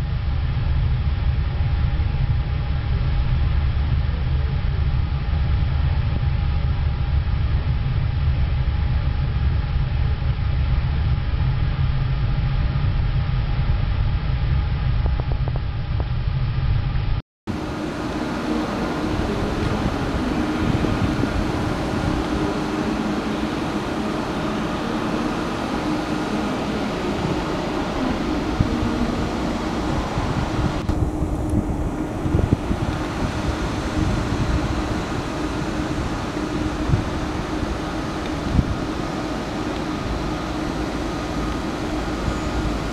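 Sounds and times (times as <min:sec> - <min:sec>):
steady hum: 0:00.0 - 0:42.9
train rumbling on rails: 0:17.5 - 0:42.9.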